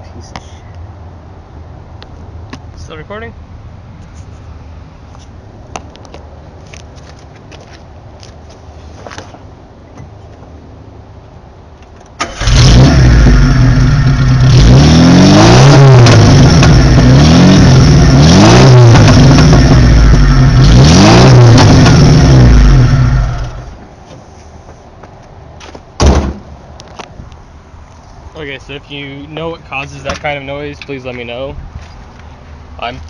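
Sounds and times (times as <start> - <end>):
car engine revving: 12.2 - 23.8.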